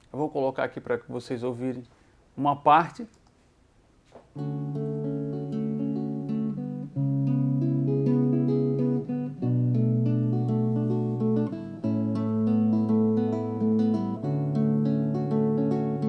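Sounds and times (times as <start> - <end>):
acoustic guitar playing chords: 4.3 - 16.0.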